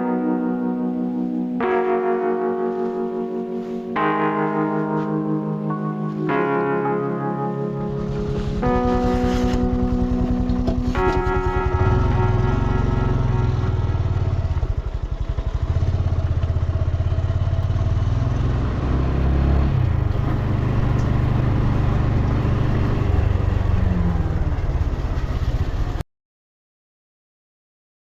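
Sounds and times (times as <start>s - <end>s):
motorcycle engine running: 7.8s - 18.9s.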